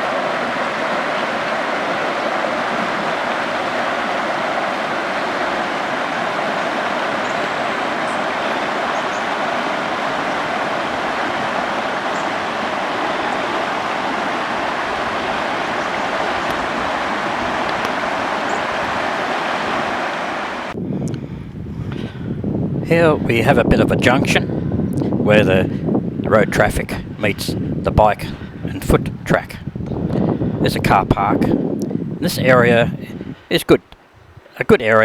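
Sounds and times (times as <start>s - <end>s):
rushing wind: 0.0s - 35.0s.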